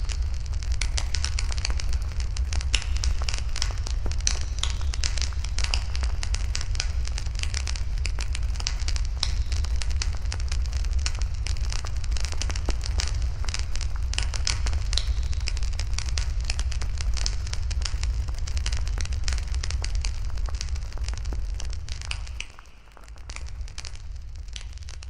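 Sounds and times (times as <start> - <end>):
low fire rumble: 0.0 - 25.0
wood fire crackling and popping: 0.0 - 25.0.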